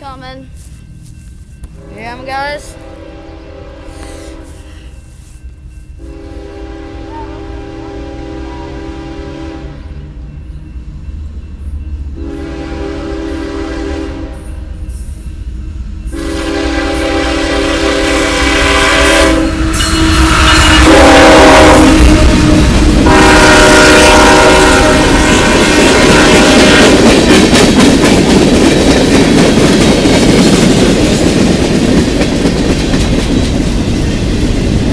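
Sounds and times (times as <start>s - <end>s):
train passing: 0.0s - 34.9s
locomotive horn blasts: 1.8s - 4.9s, 6.0s - 9.9s, 12.2s - 14.5s, 16.1s - 27.1s.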